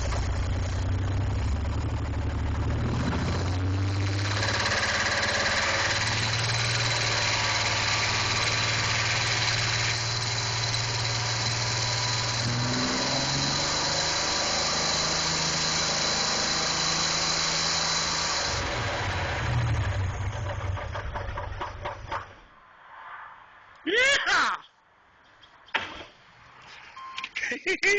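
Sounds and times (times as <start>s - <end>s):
engine running: 0.0s - 22.5s
engine bearings knocking: 4.2s - 12.4s, 19.7s - 22.4s.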